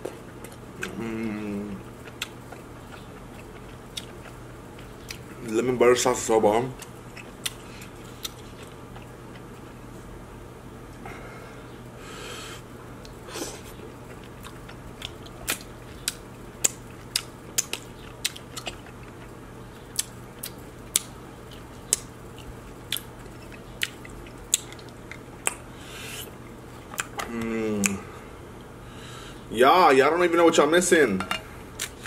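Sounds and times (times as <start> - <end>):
chewing with wet mouth clicks: 2.0 - 5.4, 6.8 - 9.6, 13.8 - 25.6, 26.4 - 28.0, 31.8 - 32.0.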